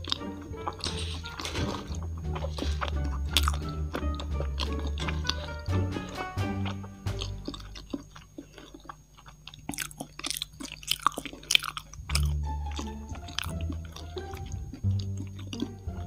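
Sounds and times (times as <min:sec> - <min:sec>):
background music: 0:00.0 - 0:08.1, 0:12.1 - 0:16.0
close-up chewing: 0:00.0 - 0:16.0.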